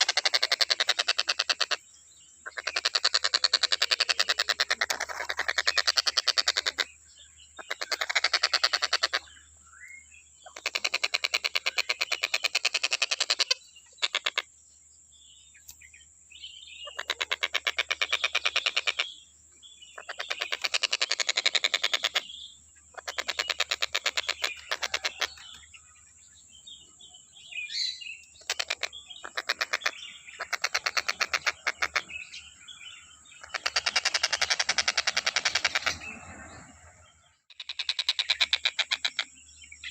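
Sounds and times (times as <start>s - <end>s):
kingfisher rattling call: 0.0s - 1.8s, 2.4s - 6.9s, 7.6s - 9.3s, 10.5s - 14.5s, 16.9s - 19.1s, 20.0s - 22.3s, 22.9s - 25.6s, 28.4s - 32.4s, 33.3s - 36.5s.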